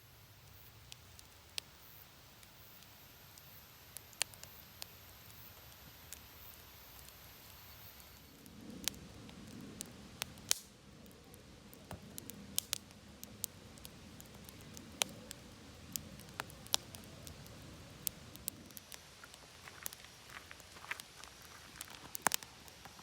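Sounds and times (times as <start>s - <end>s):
campfire crackling: 0.0s - 23.0s
low rumble of fire: 0.0s - 23.0s.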